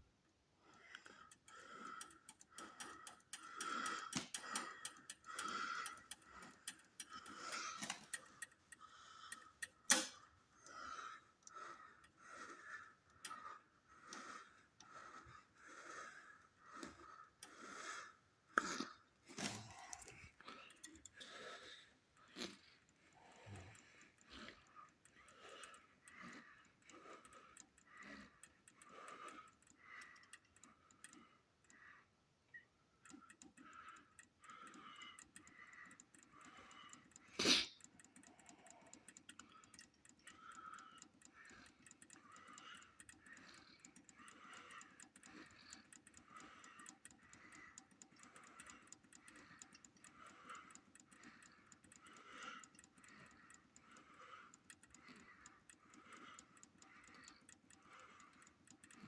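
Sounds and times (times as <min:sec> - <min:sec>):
faint regular ticking: 0:00.0 - 0:59.0
sharp click: 0:09.6 - 0:10.2.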